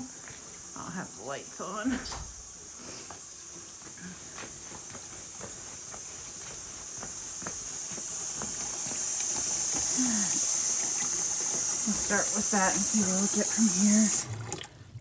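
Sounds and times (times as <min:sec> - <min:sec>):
footsteps: 0:00.0 - 0:00.6, 0:01.9 - 0:13.2
steady high hiss: 0:00.0 - 0:14.2.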